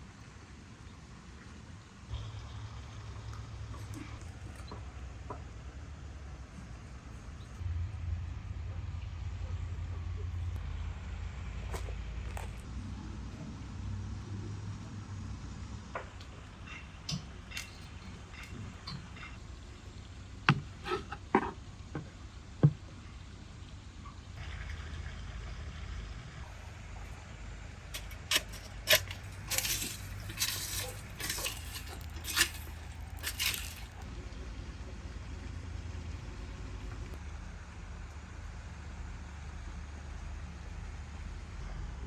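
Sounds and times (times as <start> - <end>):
short scraping noises: 28.0 - 34.0
utensils and dishes clinking: 28.0 - 34.0.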